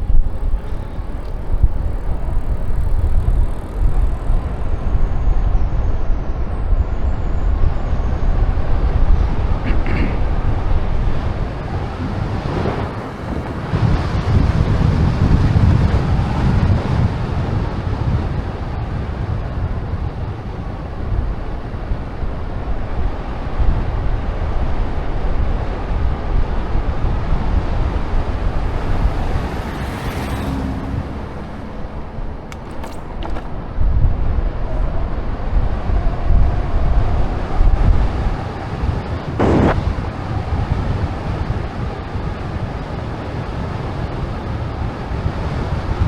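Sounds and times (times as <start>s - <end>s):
wind buffeting microphone: 0.0s - 46.0s
small clicks: 32.4s - 33.6s.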